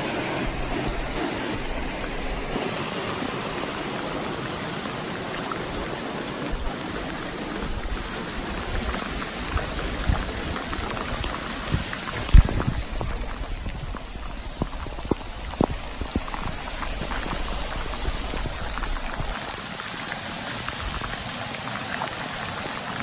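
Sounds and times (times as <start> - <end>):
floodwater rushing: 0.0 - 23.0
low thumps: 7.6 - 19.4.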